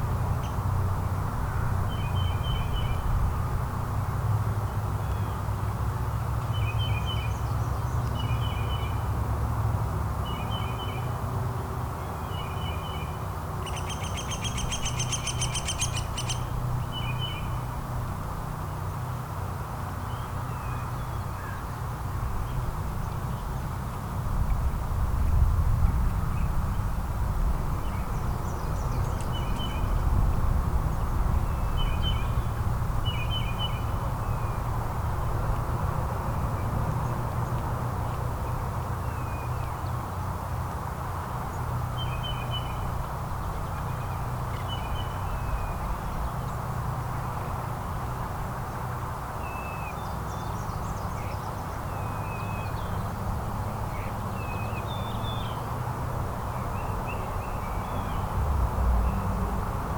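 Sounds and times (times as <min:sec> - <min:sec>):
songbirds chirping: 0:12.0 - 0:17.7, 0:27.8 - 0:40.1, 0:41.2 - 0:47.0.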